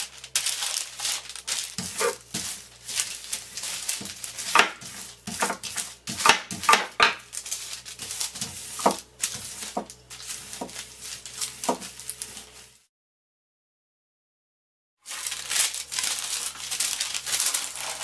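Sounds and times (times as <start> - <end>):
paper rustling: 0.0 - 12.8, 15.0 - 18.0
rolling pin knocks and clicks: 4.0 - 7.2.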